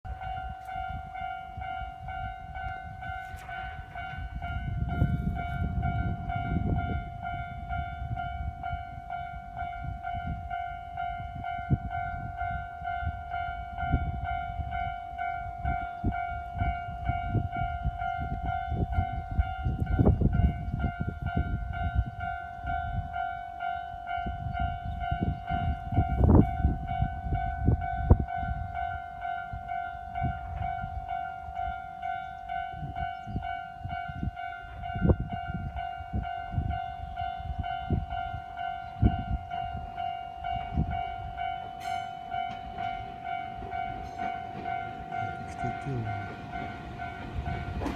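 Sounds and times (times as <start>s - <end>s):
electric train rumble: 0.0s - 47.9s
level-crossing warning bell: 0.0s - 47.9s
train wheel clacks: 41.5s - 47.9s.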